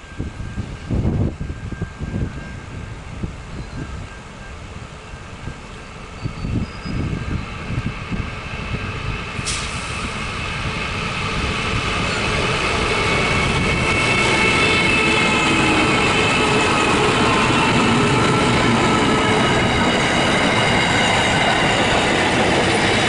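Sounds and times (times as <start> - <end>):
train approaching: 0.0 - 23.0
wind buffeting microphone: 0.0 - 23.0
wheel squeal: 6.2 - 7.5.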